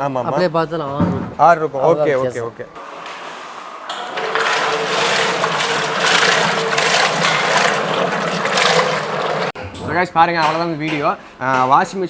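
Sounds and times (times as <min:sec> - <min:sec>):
washing machine motor humming: 0:02.8 - 0:09.6
rough mechanical rattle: 0:03.8 - 0:09.6.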